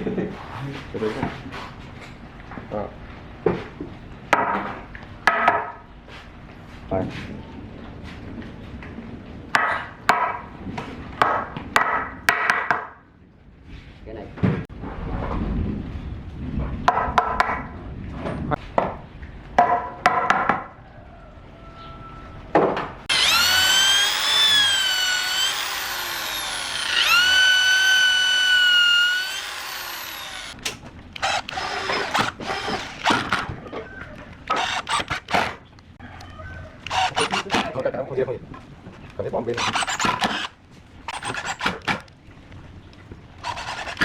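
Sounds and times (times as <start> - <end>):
wood and tools knocking: 22.6 - 35.6, 36.9 - 37.8
electric drill motor whine: 23.1 - 30.6, 31.2 - 33.4, 34.5 - 35.4, 36.8 - 37.7, 39.6 - 40.5, 41.1 - 42.0, 43.4 - 44.0.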